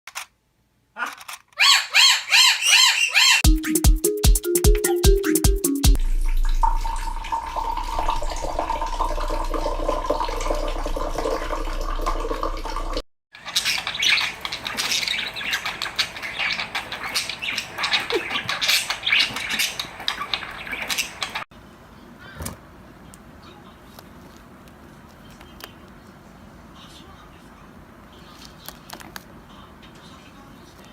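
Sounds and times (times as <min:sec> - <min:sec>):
birds chirping and squawking: 0:01.0 - 0:03.5, 0:13.4 - 0:21.4, 0:22.2 - 0:22.6
steady hum with held tone: 0:06.0 - 0:13.0.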